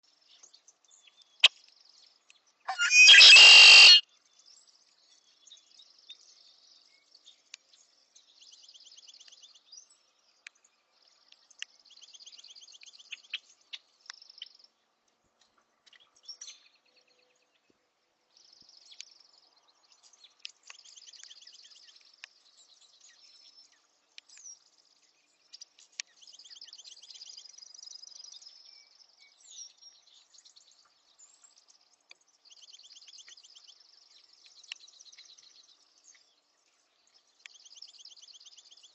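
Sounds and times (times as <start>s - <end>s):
small birds trilled chirps: 0.0s - 38.9s
bird harsh scream: 2.7s - 4.0s.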